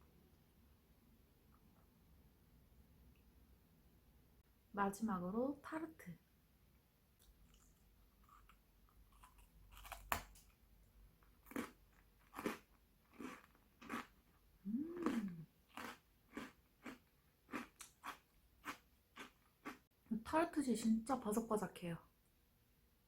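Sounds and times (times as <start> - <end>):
crisp tart shell crunching: 7.2 - 10.6.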